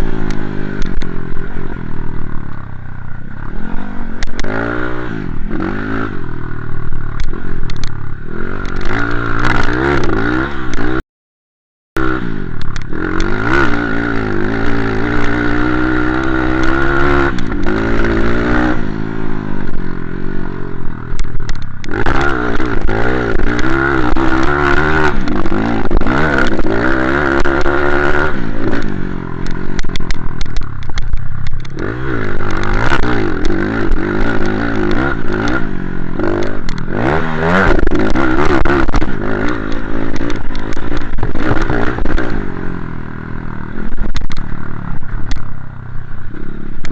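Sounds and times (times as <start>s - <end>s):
motorbike engine revving: 0.0s - 11.0s, 12.0s - 46.9s.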